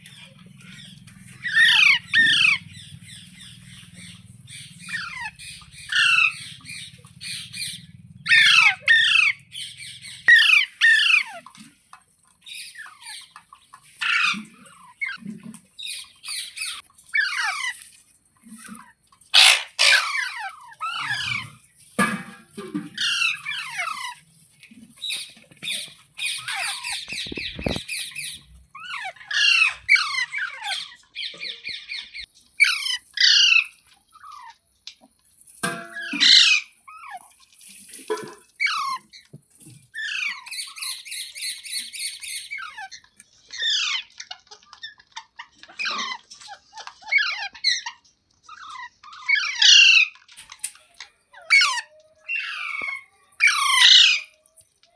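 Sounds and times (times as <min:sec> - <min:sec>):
parrot squawking: 0:00.6 - 0:11.4, 0:14.0 - 0:15.2, 0:19.4 - 0:21.5, 0:23.0 - 0:24.2, 0:26.2 - 0:27.9, 0:28.8 - 0:33.7, 0:36.0 - 0:37.2, 0:40.0 - 0:50.2, 0:51.3 - 0:54.4.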